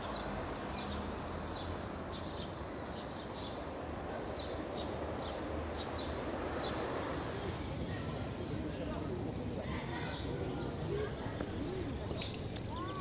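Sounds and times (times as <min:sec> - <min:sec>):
small birds chirping: 0:11.4 - 0:13.0.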